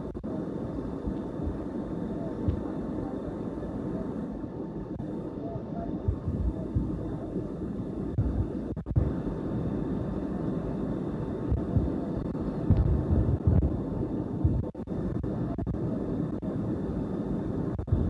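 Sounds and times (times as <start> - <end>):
airliner cabin engine rumble: 0.0 - 18.0
faint high whine: 0.0 - 18.0
low uneven thuds: 12.7 - 13.8, 14.4 - 14.6.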